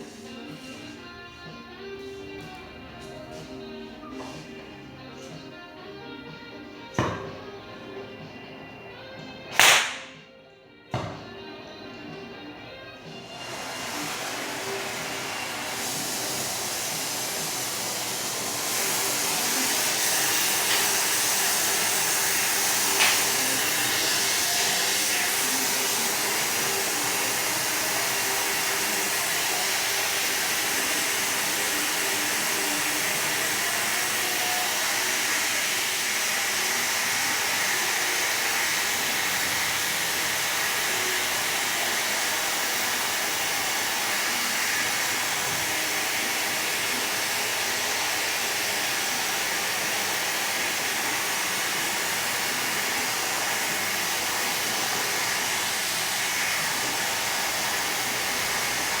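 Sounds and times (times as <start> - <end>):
sharp click: 9.5 - 10.2
rushing hiss of air: 13.3 - 59.0.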